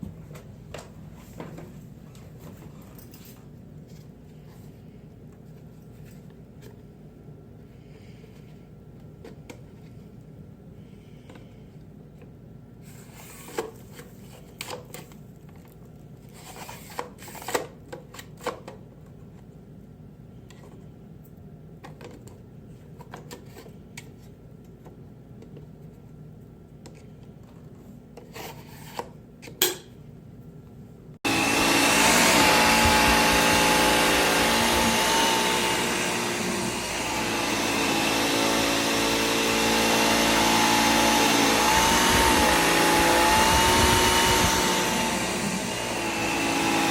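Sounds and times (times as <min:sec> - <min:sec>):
cordless vacuum whining: 0:31.3 - 0:46.9.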